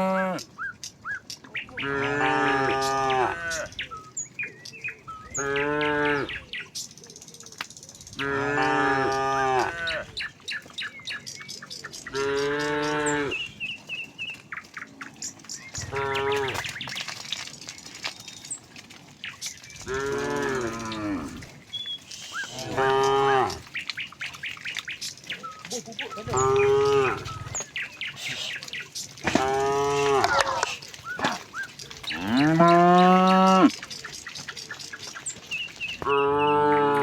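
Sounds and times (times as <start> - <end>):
cattle mooing: 0.0 - 0.5, 1.8 - 3.8, 5.4 - 6.4, 8.2 - 10.1, 12.1 - 13.5, 15.8 - 16.7, 19.8 - 21.5, 22.4 - 23.7, 26.2 - 27.6, 29.2 - 31.4, 32.1 - 33.8, 36.0 - 37.0.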